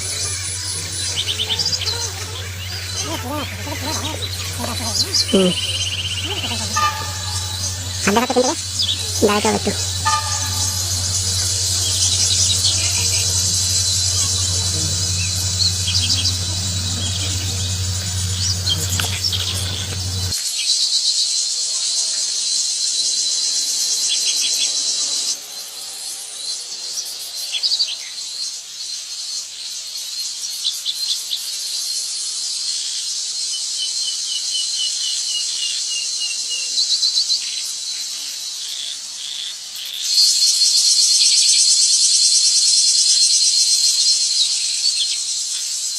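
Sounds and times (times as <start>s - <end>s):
bird chirps: 0.0s - 20.4s
high-pitched insect buzzing: 0.0s - 20.4s
low steady hum: 0.0s - 20.4s
insect chorus: 0.0s - 45.9s
bird falling notes: 1.0s - 20.3s.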